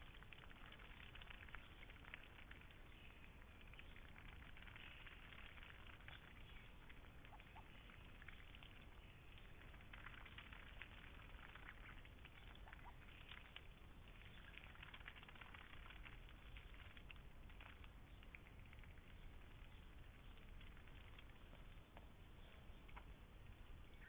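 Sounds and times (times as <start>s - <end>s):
faint dense crackling: 0.0s - 24.0s.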